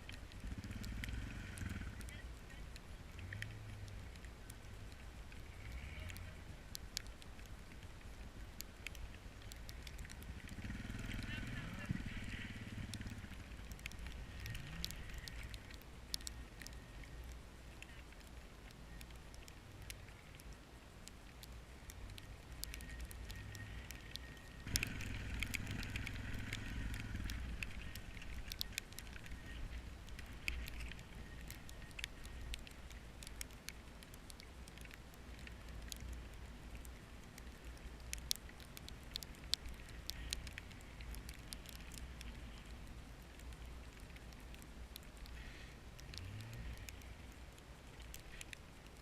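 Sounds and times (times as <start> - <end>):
crackling ticks: 0.0 - 49.0
vehicle engine running low: 22.8 - 32.5.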